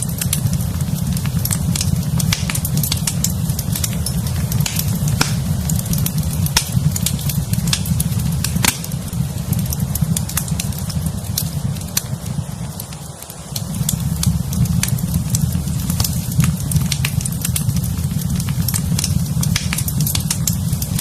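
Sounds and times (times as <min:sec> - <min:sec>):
low rumble: 0:00.0 - 0:12.9
fire crackling and popping: 0:00.0 - 0:21.0.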